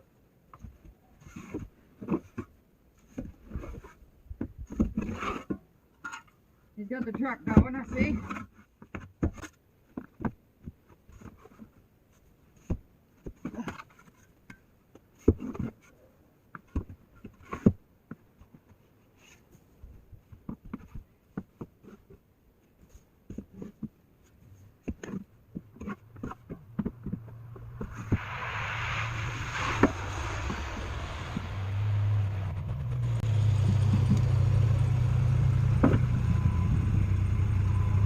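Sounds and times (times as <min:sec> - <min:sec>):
steady rushing noise: 0:26.6 - 0:35.1
truck engine idling: 0:30.0 - 0:38.0.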